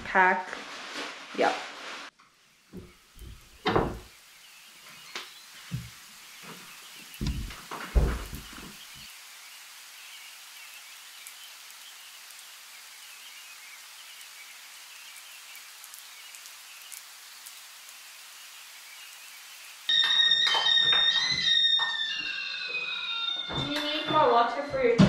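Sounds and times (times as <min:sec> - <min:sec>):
light rain hiss: 0:00.0 - 0:20.8
raindrop ticks: 0:04.8 - 0:09.1, 0:10.6 - 0:18.1.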